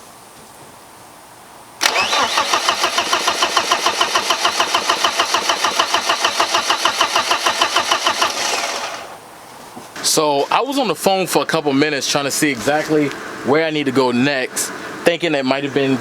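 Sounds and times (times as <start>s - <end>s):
starter cranking engine: 1.8s - 9.2s.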